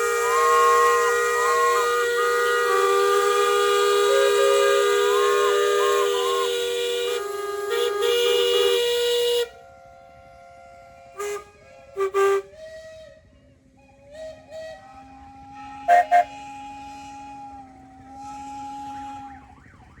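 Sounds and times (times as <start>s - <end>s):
steam whistles blowing: 0.0s - 20.0s
short loud whistle toots: 14.3s - 19.6s.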